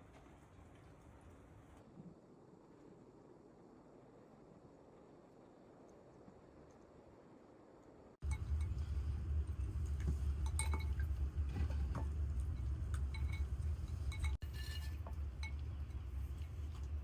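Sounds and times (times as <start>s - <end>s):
steady low rumble: 1.8s - 17.0s
glass and crockery clinking: 10.4s - 15.8s.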